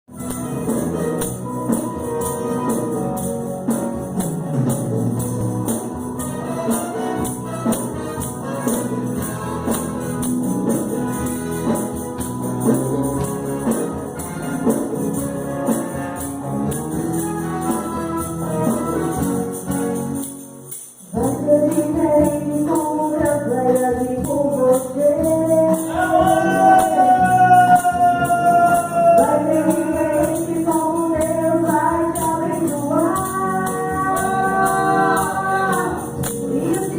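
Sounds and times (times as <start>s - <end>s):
fast jingling tambourine: 0.1s - 36.9s
voices singing gospel: 24.7s - 36.9s.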